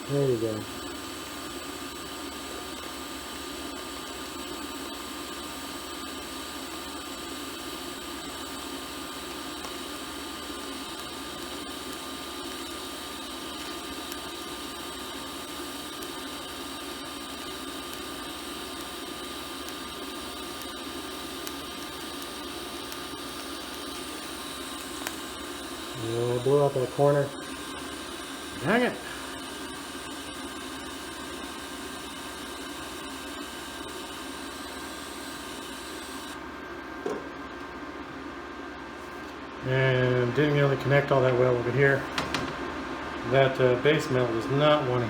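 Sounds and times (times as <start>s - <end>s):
welding machine hum: 0.0s - 37.9s, 39.0s - 45.0s
welding arc hissing: 9.0s - 36.4s.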